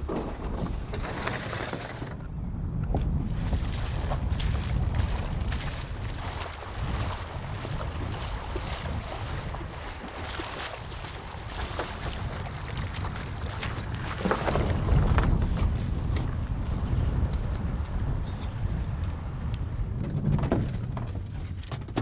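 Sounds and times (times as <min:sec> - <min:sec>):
wind buffeting microphone: 0:00.0 - 0:22.0
small knocks and rustles: 0:11.6 - 0:22.0.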